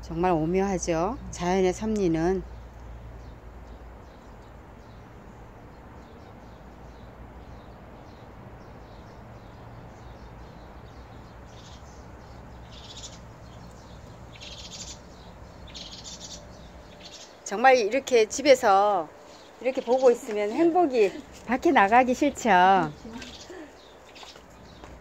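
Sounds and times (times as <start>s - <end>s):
low outdoor rumble: 0.0s - 25.0s
birds calling: 0.9s - 25.0s
high bird chirps: 10.9s - 17.4s.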